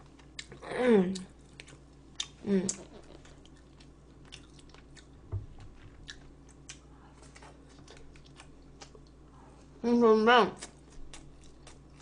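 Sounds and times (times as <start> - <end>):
person chewing food: 0.0 - 9.4, 10.6 - 12.0
soft low thump: 5.3 - 5.8.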